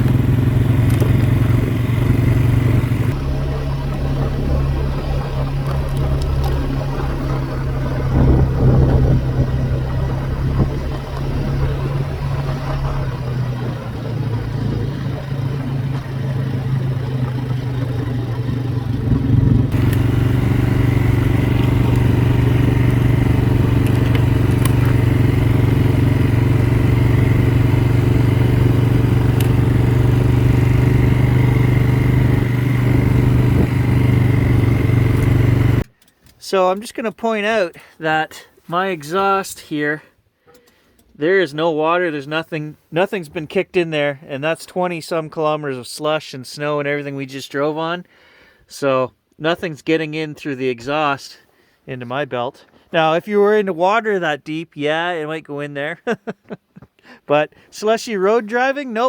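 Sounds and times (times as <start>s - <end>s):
atv engine running: 0.0s - 36.1s.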